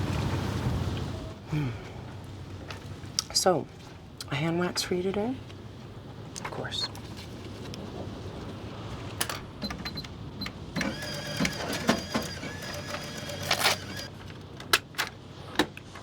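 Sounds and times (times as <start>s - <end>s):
cash register keys clicking: 10.8s - 14.1s
receipt printer running: 10.8s - 14.1s.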